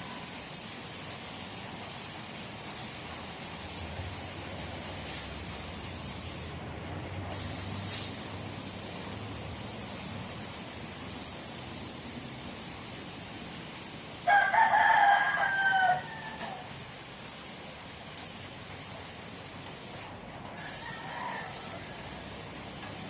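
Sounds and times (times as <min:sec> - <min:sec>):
steady background hiss: 0:00.0 - 0:23.0
rooster crowing: 0:14.2 - 0:16.7, 0:20.6 - 0:22.4.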